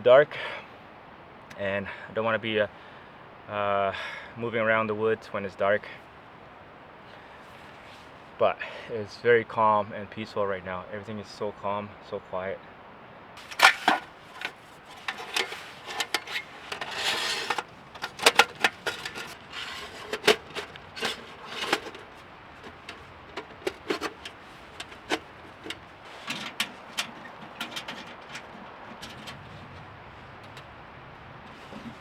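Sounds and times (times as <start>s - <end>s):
camp gear clicking and knocking: 13.4s - 32.0s
rustling: 13.4s - 32.0s.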